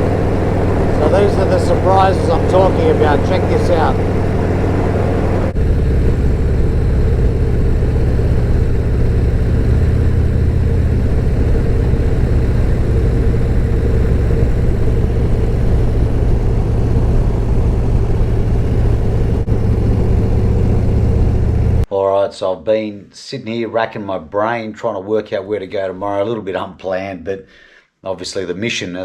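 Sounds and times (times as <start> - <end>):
motorcycle engine running steadily: 0.0 - 21.9.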